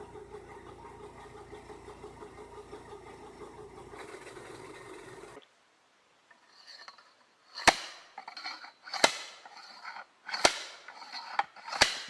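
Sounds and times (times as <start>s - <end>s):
tool scraping and rattling: 0.0s - 5.4s, 6.3s - 12.0s
metal striking wood: 7.6s - 12.0s.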